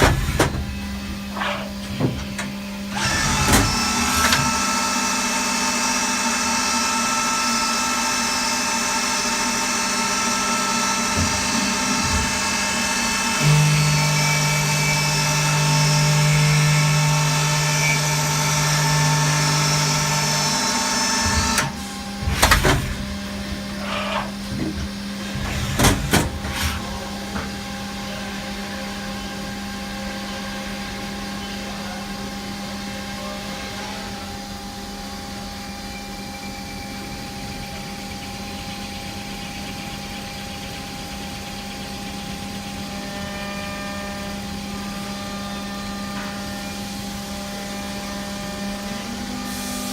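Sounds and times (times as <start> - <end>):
loud machine clunks: 0.0 - 4.6, 10.7 - 26.8
lathe running tones: 0.0 - 49.9
machine steady hum: 0.0 - 49.9.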